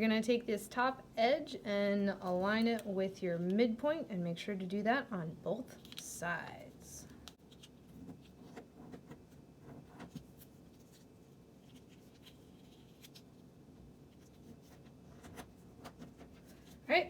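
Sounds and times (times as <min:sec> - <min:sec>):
room hum: 0:00.0 - 0:17.0
paper being folded: 0:10.0 - 0:16.8.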